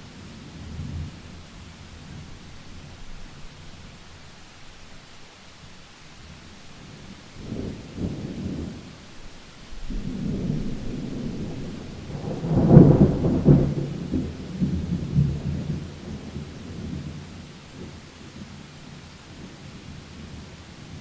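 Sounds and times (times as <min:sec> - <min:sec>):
steady rain: 0:00.0 - 0:21.0
thunder rolling: 0:09.8 - 0:17.2.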